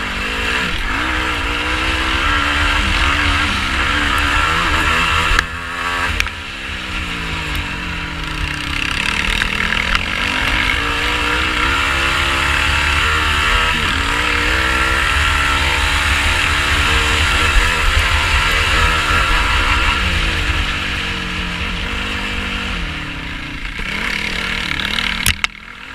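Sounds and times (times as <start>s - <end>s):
quad bike engine revving: 0.0s - 25.9s.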